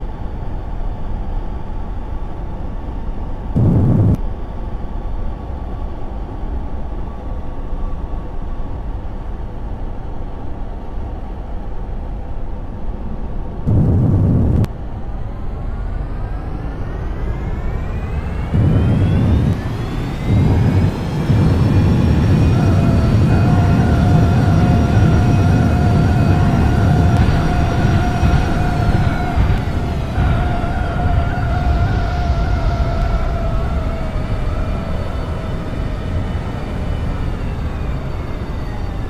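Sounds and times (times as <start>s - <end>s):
jet engines whining: 0.1s - 9.6s, 13.5s - 39.0s
wind noise: 3.5s - 4.3s, 13.5s - 39.0s
loud low bursts: 3.6s - 4.4s, 13.7s - 39.0s.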